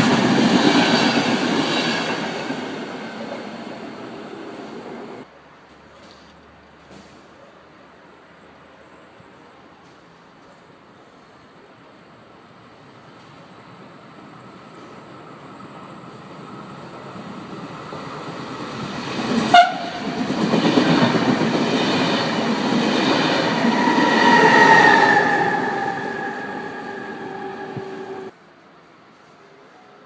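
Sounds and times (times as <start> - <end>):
train passing at speed: 0.0 - 5.3, 11.0 - 29.9
short train horn blast: 19.5 - 20.0.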